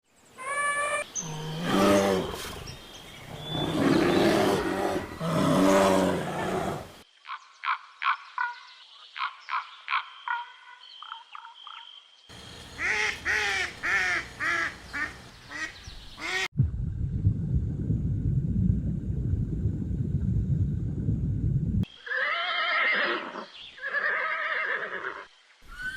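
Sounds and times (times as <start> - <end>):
high arching animal calls: 0.4 - 11.8, 12.4 - 16.5, 21.9 - 25.9
duck quacking: 12.7 - 16.5.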